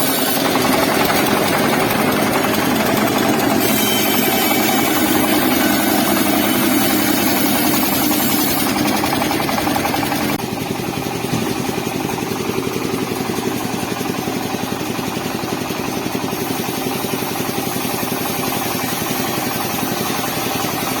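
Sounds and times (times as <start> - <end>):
car engine running steadily: 0.1 - 3.7, 4.4 - 21.0.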